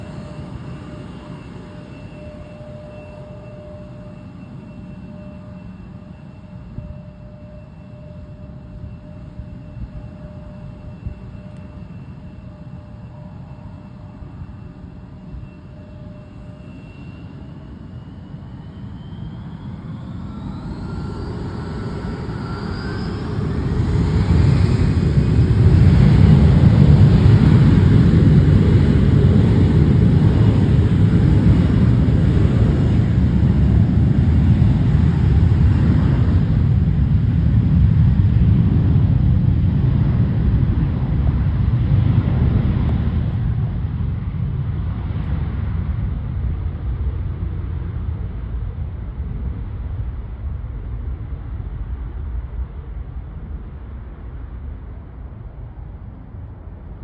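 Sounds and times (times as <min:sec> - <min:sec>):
jet engines at takeoff: 0:00.0 - 0:57.0.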